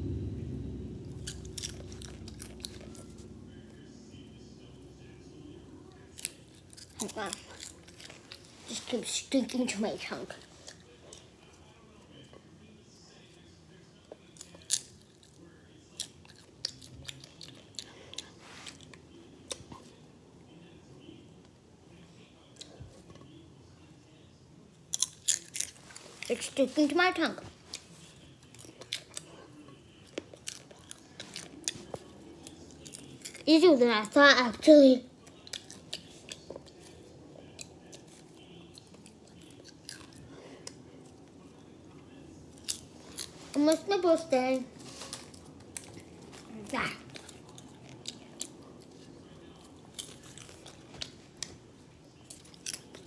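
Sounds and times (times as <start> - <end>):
popcorn crunching and chewing: 6.1 - 12.2, 14.0 - 20.0, 24.8 - 34.2, 35.2 - 43.9, 44.8 - 53.0.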